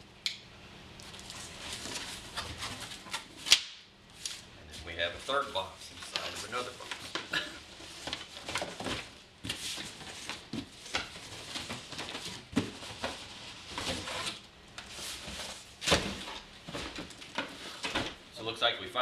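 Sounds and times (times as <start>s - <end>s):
cardboard boxes scraping and rustling: 6.0s - 18.0s.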